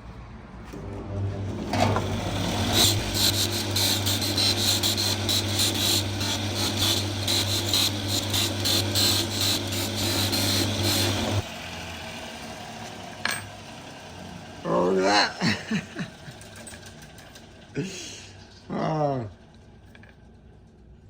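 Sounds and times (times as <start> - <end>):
buffing machine motor hum: 0.9 - 13.2
metal key rasping on polishing wheel: 2.7 - 11.5.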